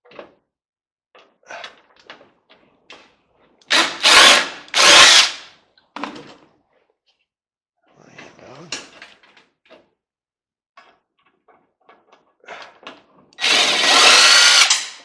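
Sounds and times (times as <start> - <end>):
power drill running: 3.7 - 5.5, 13.4 - 15.0.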